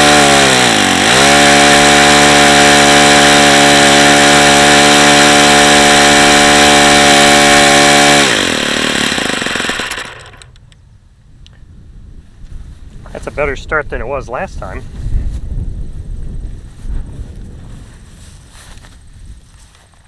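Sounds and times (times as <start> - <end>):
model airplane engine running: 0.0 - 10.6.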